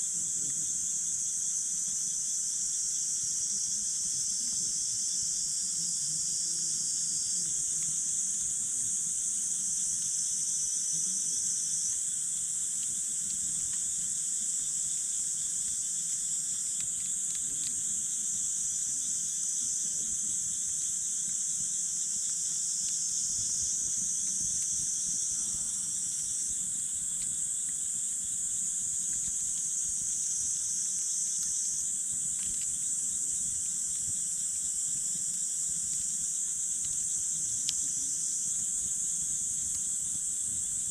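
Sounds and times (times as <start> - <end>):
crickets chirping: 0.0 - 40.9
campfire crackling: 28.6 - 39.9.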